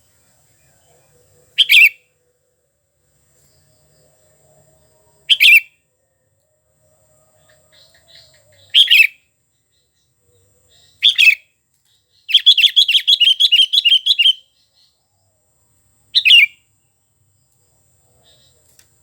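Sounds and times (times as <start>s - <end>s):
bird singing whistled phrases: 1.6s - 2.1s, 5.3s - 5.8s, 8.2s - 9.2s, 10.8s - 11.4s, 12.2s - 14.6s, 16.2s - 16.6s.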